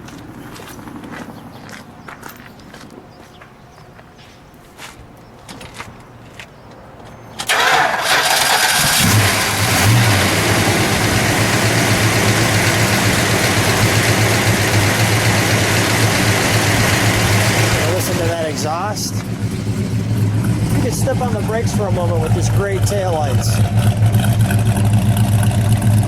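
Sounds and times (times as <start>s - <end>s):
starter motor cranking: 7.4s - 18.6s
car engine idling: 7.5s - 26.0s.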